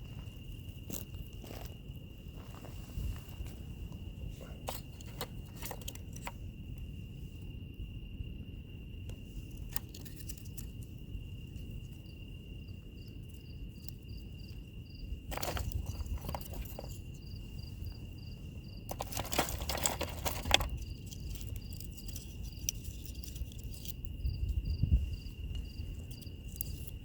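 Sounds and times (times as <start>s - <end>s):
insect chirps: 0.0s - 27.0s
insect trilling: 9.7s - 27.0s.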